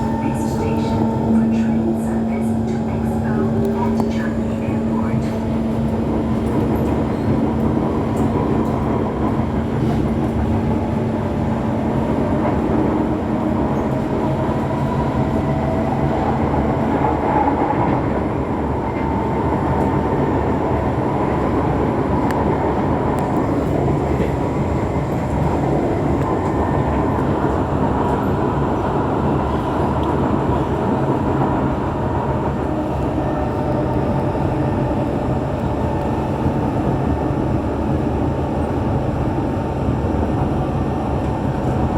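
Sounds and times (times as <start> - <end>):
metro train wheels rumbling on rail: 0.0 - 41.9.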